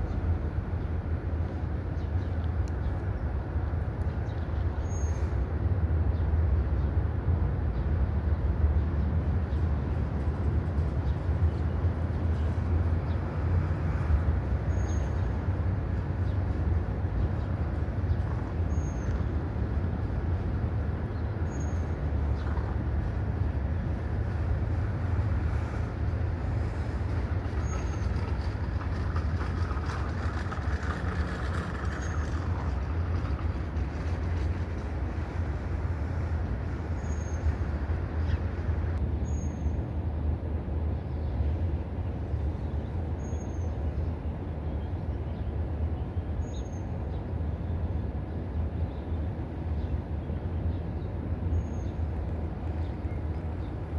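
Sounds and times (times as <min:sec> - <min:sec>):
low rumble with hiss: 0:00.0 - 0:53.9.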